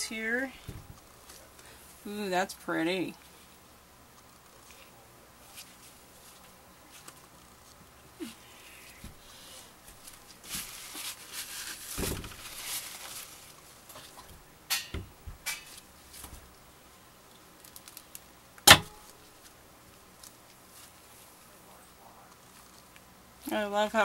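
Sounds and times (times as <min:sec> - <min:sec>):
sharp loud knock: 0:18.7 - 0:19.0.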